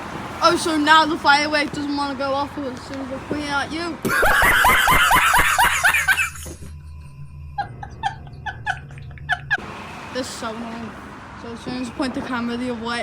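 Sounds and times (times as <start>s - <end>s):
person giggling: 4.0s - 7.0s, 7.6s - 9.6s
person laughing loudly: 4.0s - 9.6s.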